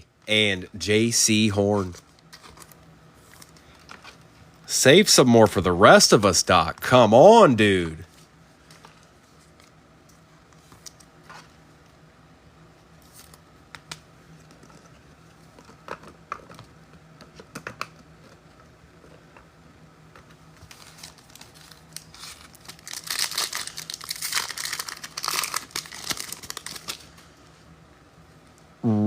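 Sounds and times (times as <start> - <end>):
wrapper tearing and crinkling: 20.6 - 27.1.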